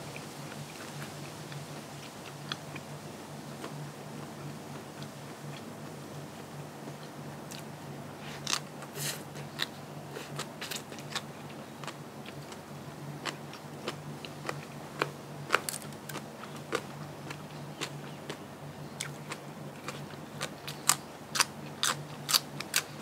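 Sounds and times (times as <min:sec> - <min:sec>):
low steady hum: 0:00.0 - 0:23.0
crisp crunching bites: 0:15.5 - 0:16.2
wet chewing clicks: 0:19.0 - 0:23.0.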